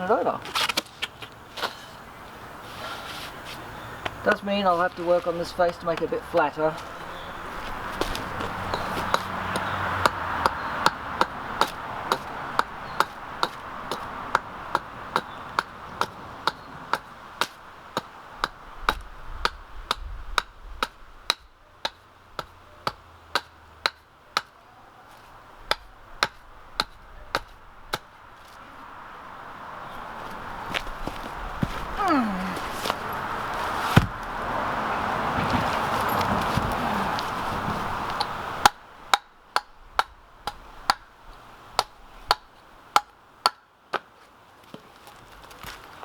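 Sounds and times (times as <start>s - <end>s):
axe chopping into a stump: 8.0s - 24.5s, 25.7s - 28.1s, 33.8s - 34.3s.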